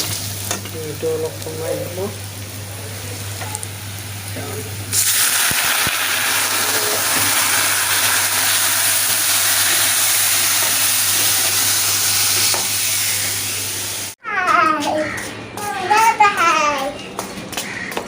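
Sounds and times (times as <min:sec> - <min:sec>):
onions sizzling in hot oil: 0:00.0 - 0:14.2.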